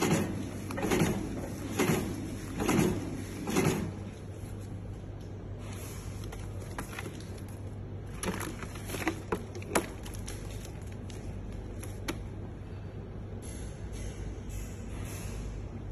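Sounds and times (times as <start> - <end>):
sewing machine humming: 0.0 - 4.3.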